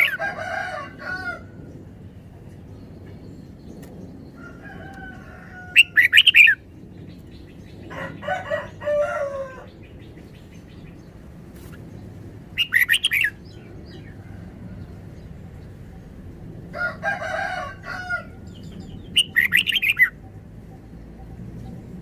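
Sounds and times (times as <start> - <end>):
rooster crowing: 0.0 - 1.6, 4.4 - 6.2, 7.9 - 9.7, 16.7 - 18.6
bird singing bright notes: 18.5 - 20.3.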